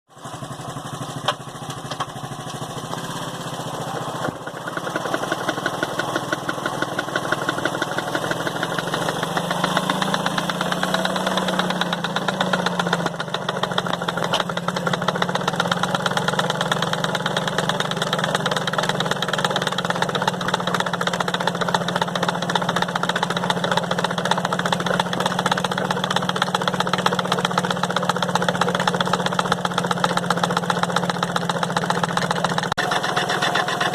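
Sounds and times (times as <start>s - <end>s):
motorcycle engine pulsing: 0.1s - 33.9s.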